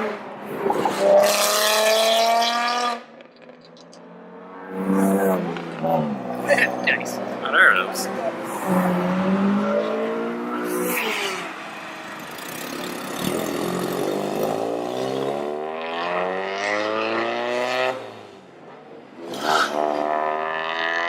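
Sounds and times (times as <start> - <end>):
car engine revving: 0.0 - 18.5, 19.1 - 21.0.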